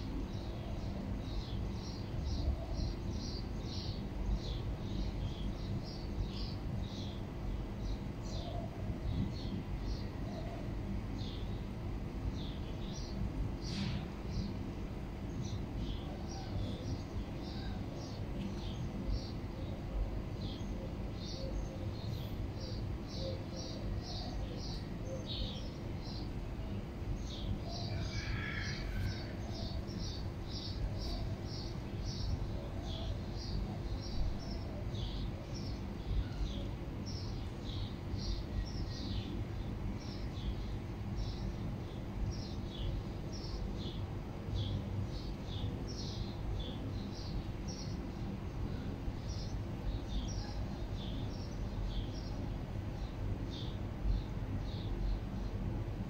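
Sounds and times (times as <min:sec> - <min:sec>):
small birds chirping: 0:00.1 - 0:56.0.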